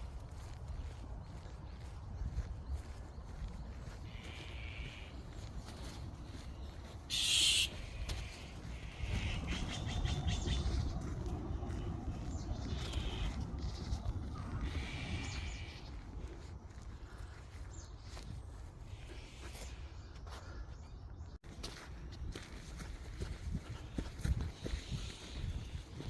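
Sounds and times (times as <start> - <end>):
birds trilling: 0.8 - 21.4.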